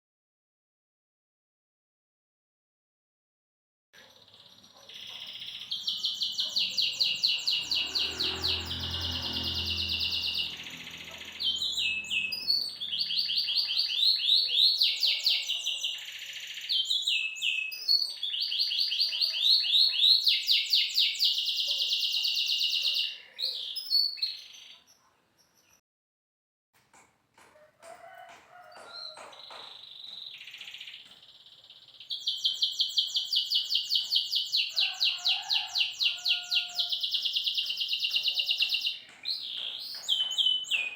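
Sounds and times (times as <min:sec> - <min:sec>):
songbird singing trills: 0:04.1 - 0:25.7, 0:28.8 - 0:34.8.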